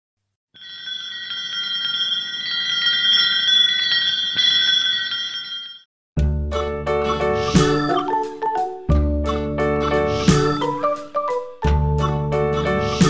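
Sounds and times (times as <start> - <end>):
shimmering chime tones: 0.6 - 5.9.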